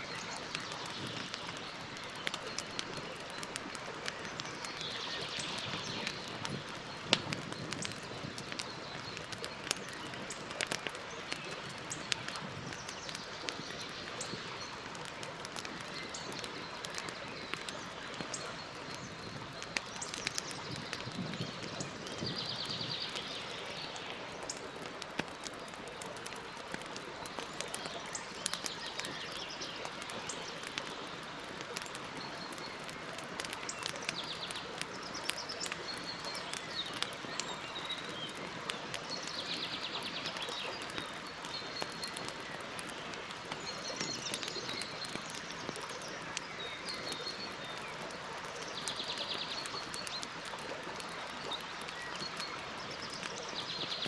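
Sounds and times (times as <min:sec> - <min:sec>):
campfire crackling: 0:00.0 - 0:54.0.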